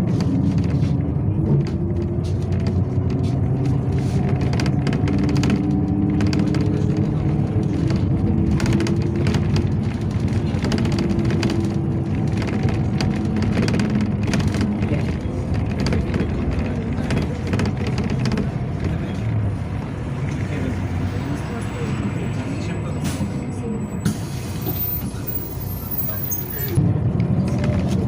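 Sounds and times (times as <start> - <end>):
rattles and knocks of bus body: 0.0 - 20.0
bus engine drone with whine: 0.0 - 28.0.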